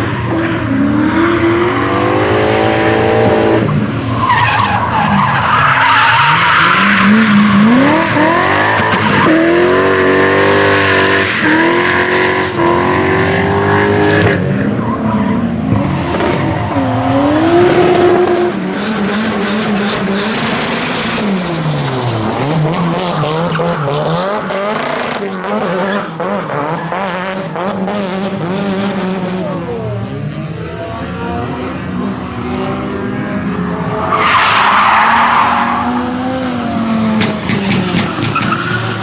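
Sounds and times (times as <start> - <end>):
rally car engine revving: 0.0 - 39.0
tyres skidding and squealing: 0.0 - 39.0.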